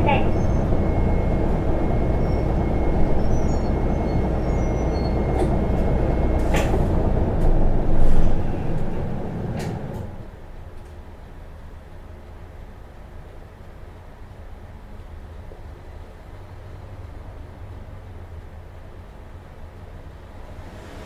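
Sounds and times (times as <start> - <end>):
bus diesel engine running: 0.0 - 10.7
air brake hisses: 20.6 - 21.0.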